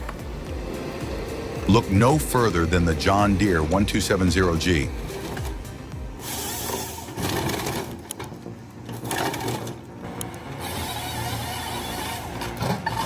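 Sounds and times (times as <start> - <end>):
fast mechanical clatter: 0.0 - 9.9
engine running under load: 0.0 - 13.0.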